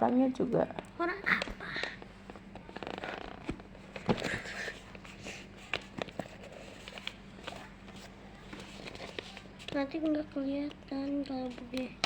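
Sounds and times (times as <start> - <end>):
paper and tape rustling: 2.6 - 10.2.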